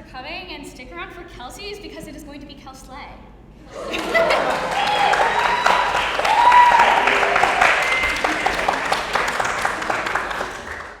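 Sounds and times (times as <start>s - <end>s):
audience applauding: 3.7s - 11.0s
voices calling out: 3.7s - 11.0s.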